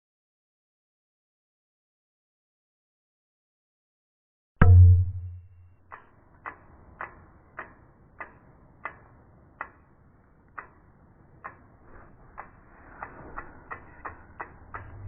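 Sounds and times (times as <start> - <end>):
low steady hum: 4.6 - 5.7
sharp ticks: 5.8 - 15.0.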